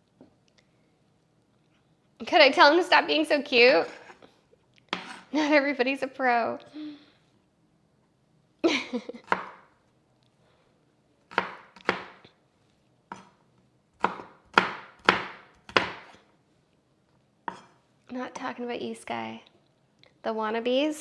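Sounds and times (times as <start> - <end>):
knife chopping on cutting board: 9.3 - 9.7, 11.3 - 12.2, 13.1 - 13.4, 14.0 - 16.2, 17.5 - 17.8.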